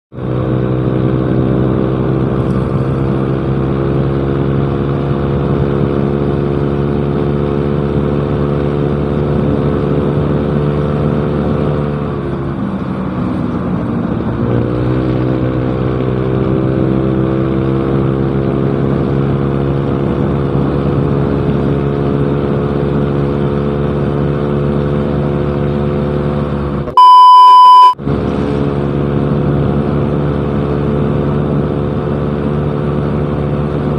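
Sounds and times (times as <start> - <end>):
scooter engine running: 0.3 - 14.3
loud beep tone: 26.9 - 28.0.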